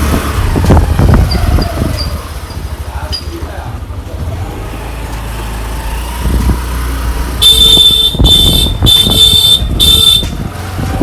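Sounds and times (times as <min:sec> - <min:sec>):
road traffic rumble: 0:00.0 - 0:11.0
wind: 0:00.0 - 0:11.0
vehicle horn blasts: 0:07.4 - 0:10.4.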